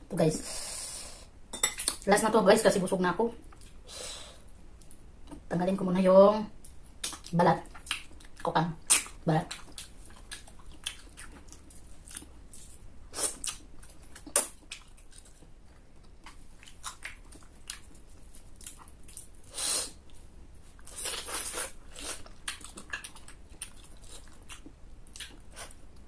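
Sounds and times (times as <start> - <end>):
chewing and biting with wet smacks: 7.0 - 12.3, 13.4 - 19.3, 21.9 - 26.0.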